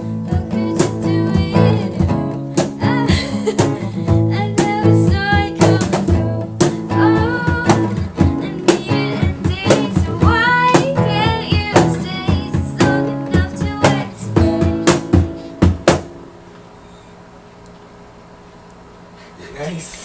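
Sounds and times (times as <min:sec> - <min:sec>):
woman singing: 0:00.0 - 0:15.0
beatboxing: 0:00.0 - 0:15.9
strummed acoustic guitars: 0:00.0 - 0:16.5.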